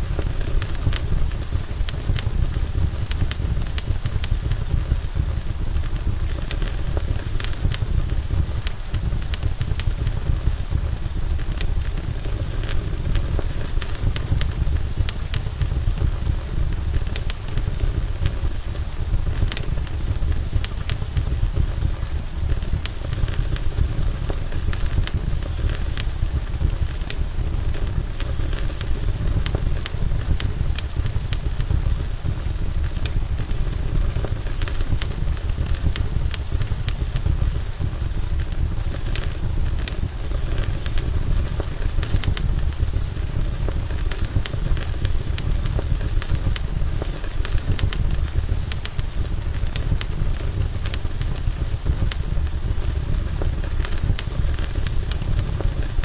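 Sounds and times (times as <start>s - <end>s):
campfire crackling: 0.0s - 56.0s.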